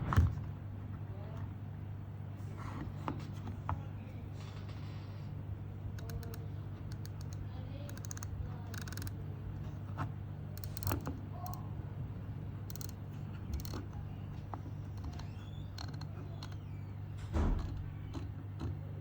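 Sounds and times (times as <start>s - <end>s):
steady low hum: 0.0s - 19.0s
handwheel clicks and creaks: 6.0s - 9.2s, 10.6s - 11.6s, 12.7s - 14.0s, 14.9s - 16.7s.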